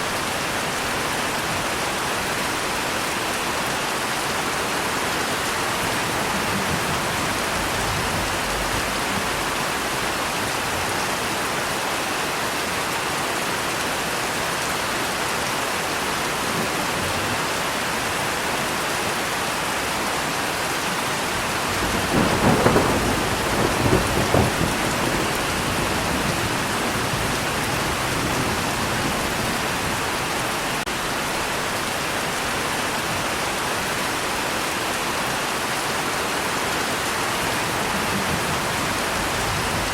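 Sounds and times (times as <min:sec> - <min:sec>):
rain falling: 0:00.0 - 0:39.9
thunder rolling: 0:05.6 - 0:10.2, 0:21.4 - 0:30.2, 0:37.4 - 0:39.9.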